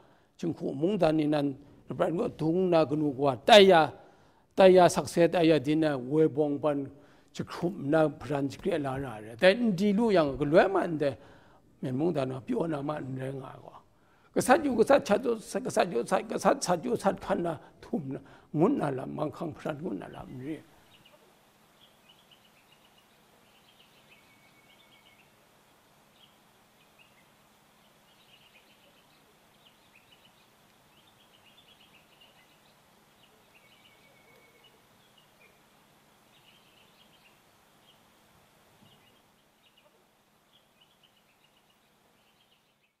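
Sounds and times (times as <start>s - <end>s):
low background hiss: 0.0s - 43.0s
faint bird chirps: 20.2s - 43.0s.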